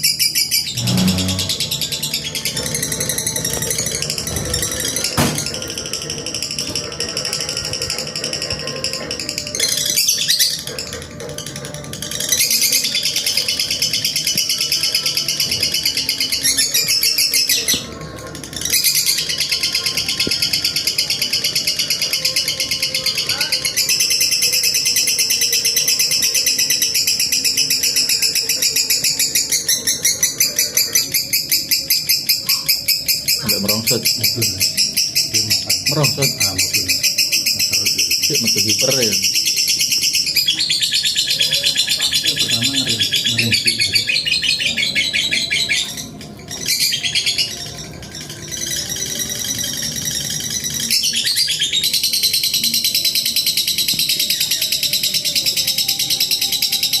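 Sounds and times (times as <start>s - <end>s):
bird chattering trill: 0.0s - 6.6s, 21.7s - 54.8s.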